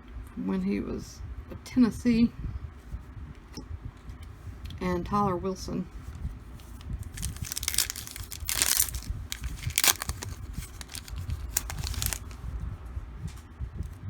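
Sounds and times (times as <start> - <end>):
wrapper tearing and crinkling: 7.0 - 12.4.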